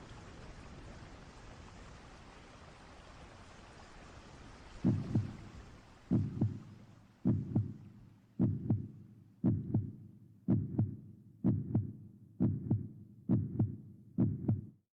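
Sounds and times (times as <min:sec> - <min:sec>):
rain-like storm hiss: 0:00.0 - 0:07.1
heartbeat thumps: 0:04.8 - 0:14.8.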